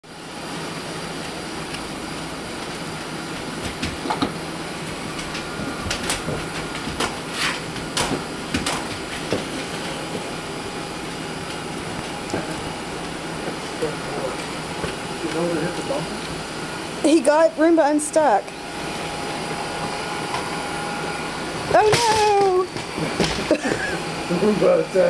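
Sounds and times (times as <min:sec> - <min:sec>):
robot vacuum humming: 0:00.2 - 0:25.0.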